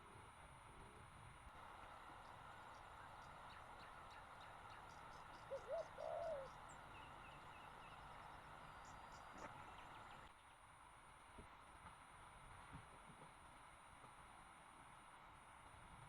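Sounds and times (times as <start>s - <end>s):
faint steady hiss: 0.0s - 16.0s
bird calling: 1.9s - 10.4s.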